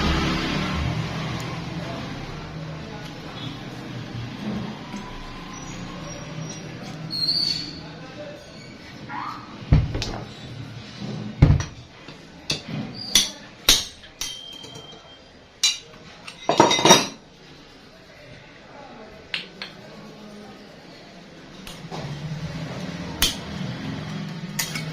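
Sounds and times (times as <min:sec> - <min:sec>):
hand tools clinking on metal: 0:12.5 - 0:15.0.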